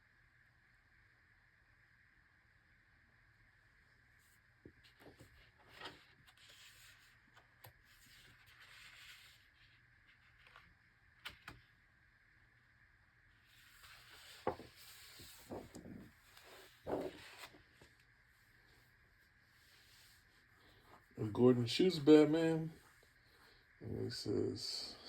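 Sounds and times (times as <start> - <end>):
book pages rustling: 4.6 - 11.7, 13.5 - 19.0.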